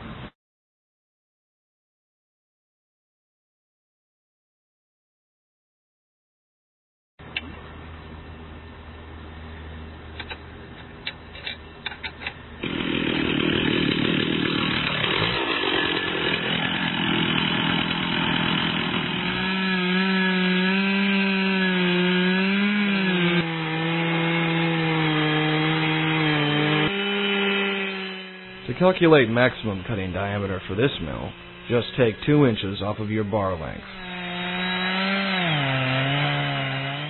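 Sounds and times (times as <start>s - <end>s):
chainsaw cutting through log: 12.6s - 37.0s.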